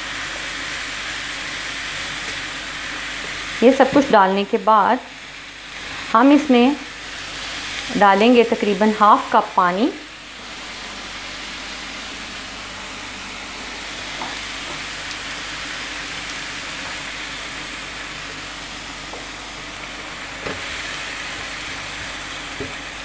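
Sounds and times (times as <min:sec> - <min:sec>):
mince sizzling in a frying pan: 0:00.0 - 0:23.0
spatula knocking while stirring: 0:21.4 - 0:22.8.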